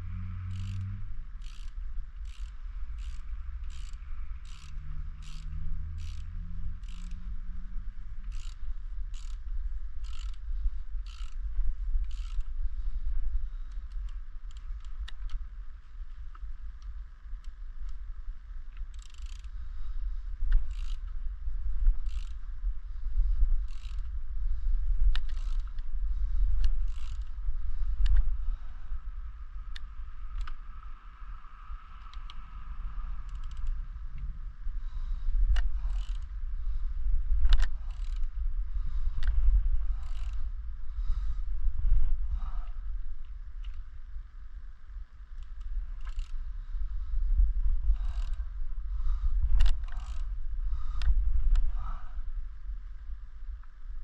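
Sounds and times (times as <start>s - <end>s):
steady low rumble: 0.0s - 54.0s
sharp clicks of hand tools: 0.4s - 7.2s, 12.1s - 12.5s, 25.1s - 25.8s, 33.2s - 33.8s, 35.5s - 36.3s, 37.4s - 38.3s
light clicks of hand tools: 25.1s - 25.9s, 28.0s - 28.3s, 29.7s - 30.7s, 31.9s - 32.4s, 33.2s - 34.3s, 35.5s - 36.4s, 37.4s - 38.3s, 45.3s - 46.4s, 48.0s - 48.4s, 49.6s - 50.3s.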